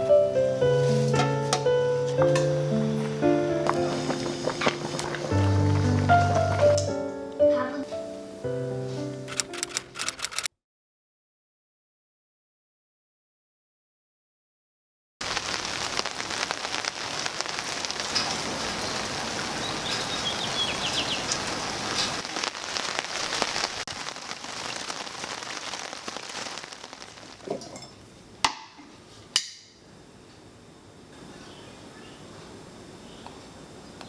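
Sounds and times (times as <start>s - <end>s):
steady rain falling: 2.2s - 7.2s, 15.2s - 28.4s
sharp clicks: 9.3s - 10.5s.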